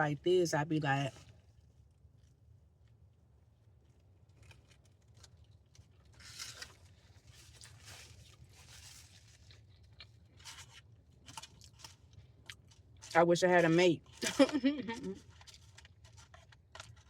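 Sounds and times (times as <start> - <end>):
paper wrapper crinkling: 4.3 - 13.2, 14.2 - 17.0.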